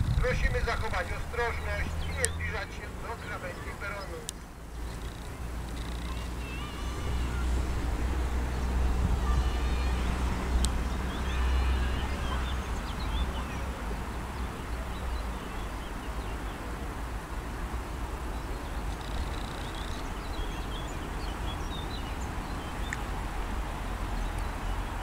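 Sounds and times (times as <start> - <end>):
low outdoor rumble: 0.0 - 25.0
small birds chirping: 0.0 - 25.0.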